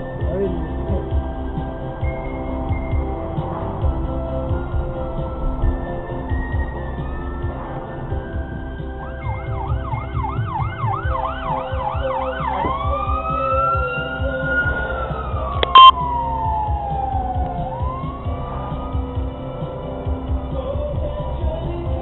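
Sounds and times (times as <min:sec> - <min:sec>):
low road rumble: 0:00.0 - 0:22.0
fire engine siren: 0:01.8 - 0:20.3.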